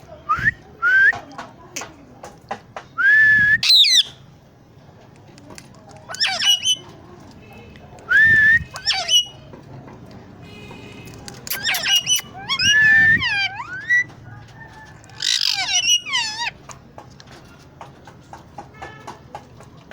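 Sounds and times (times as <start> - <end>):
parrot squawky chattering calls: 6.1 - 6.9, 8.6 - 9.4, 11.1 - 16.7
parrot whistling: 11.5 - 14.1.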